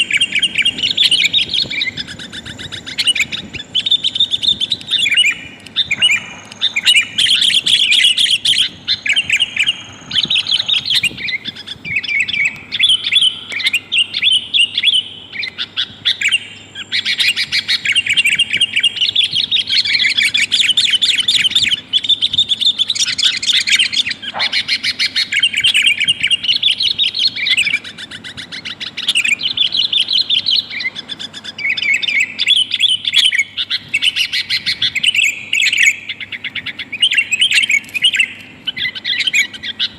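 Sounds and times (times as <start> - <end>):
bird chattering chirps: 0.0 - 39.9.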